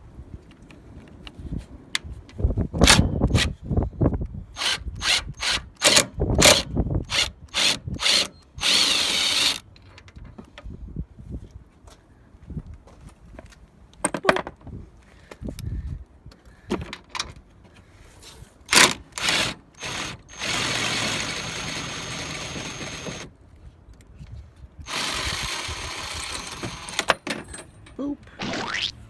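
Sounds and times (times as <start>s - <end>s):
cordless drill spinning: 4.6s - 9.6s, 18.7s - 23.3s, 24.9s - 27.1s.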